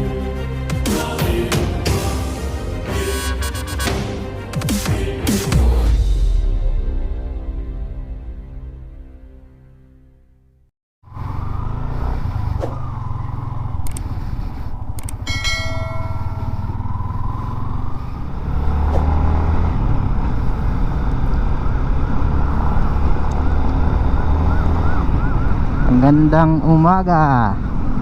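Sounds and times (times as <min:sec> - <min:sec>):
wavering siren: 0:11.0 - 0:28.0
ringing horn-like tone: 0:15.3 - 0:17.0.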